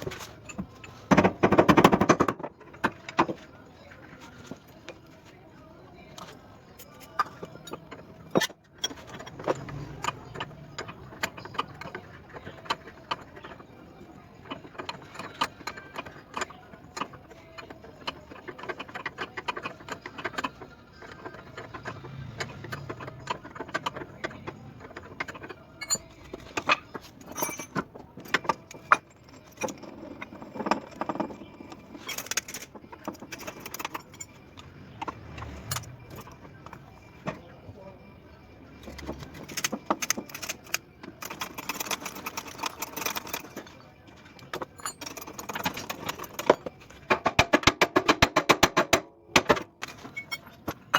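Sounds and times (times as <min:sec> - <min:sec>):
metal hand tools clinking: 0:21.4 - 0:36.8.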